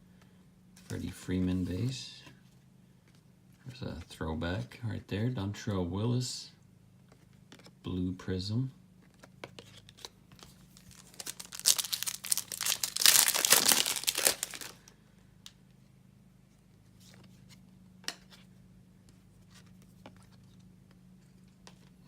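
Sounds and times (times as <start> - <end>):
foil wrapper tearing and crinkling: 10.0 - 14.9.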